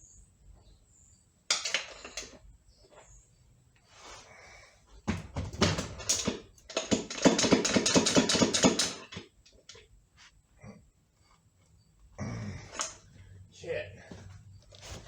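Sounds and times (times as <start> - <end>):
metal tapping and knocking: 5.1 - 9.3.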